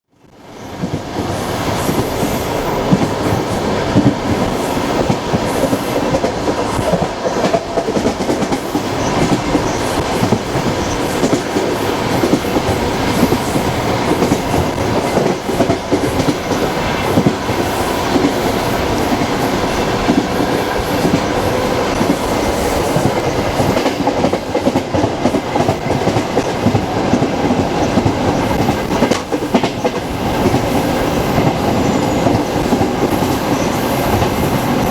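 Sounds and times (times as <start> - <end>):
train rolling rumble: 0.2 - 34.9.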